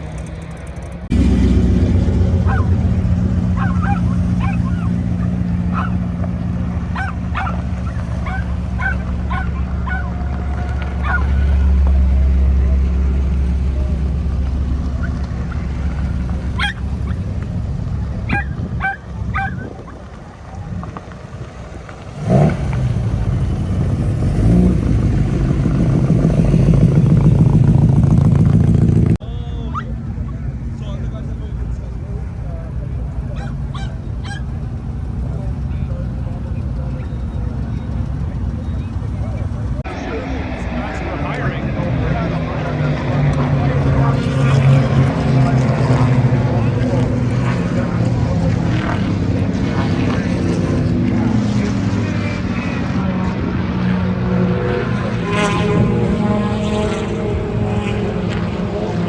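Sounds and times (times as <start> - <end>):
low engine drone: 0.0 - 59.0.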